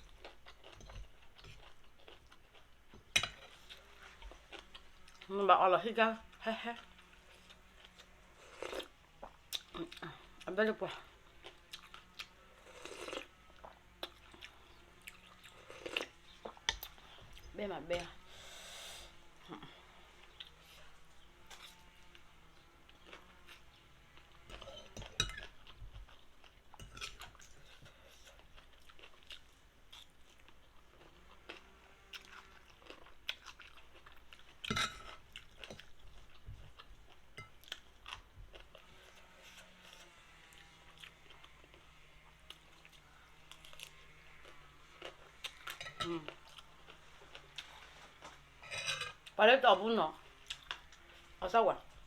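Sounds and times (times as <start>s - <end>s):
person chewing noodles: 0.0s - 5.3s, 6.3s - 17.5s, 18.2s - 48.6s, 50.2s - 51.4s.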